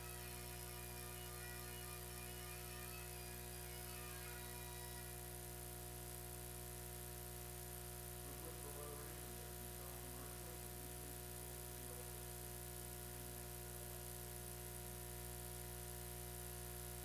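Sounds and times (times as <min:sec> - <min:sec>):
faint wavering sounds: 0:00.0 - 0:05.4
electrical hum and buzz: 0:00.0 - 0:17.0.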